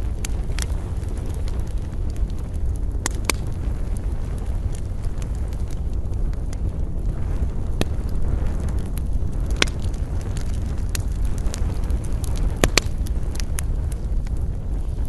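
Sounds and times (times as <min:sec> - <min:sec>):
campfire crackling and popping: 0:00.0 - 0:15.0
low rumble of wind: 0:00.0 - 0:15.0.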